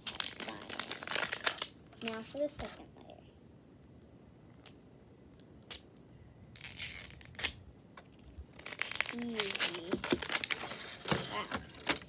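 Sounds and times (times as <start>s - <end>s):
plastic packaging crinkling: 0.0s - 2.3s, 8.5s - 12.0s.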